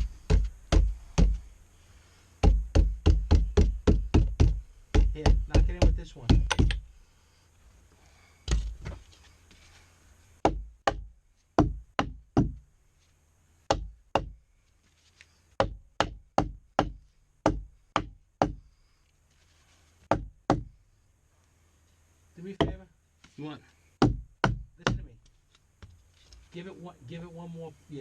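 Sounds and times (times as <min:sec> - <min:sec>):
hammer strikes: 0:02.4 - 0:06.8.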